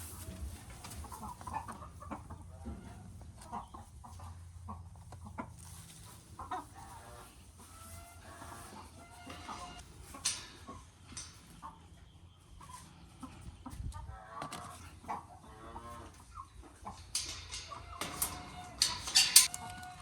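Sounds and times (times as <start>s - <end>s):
chickens clucking: 0.0s - 20.0s
sharp clicks and scratching: 16.9s - 20.0s.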